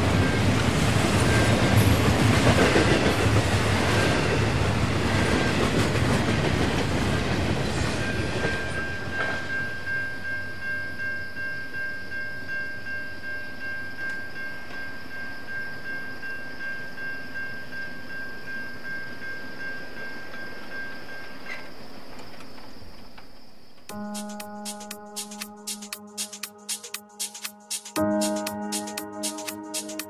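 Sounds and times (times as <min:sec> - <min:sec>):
train wheels clacking: 0:00.0 - 0:04.5.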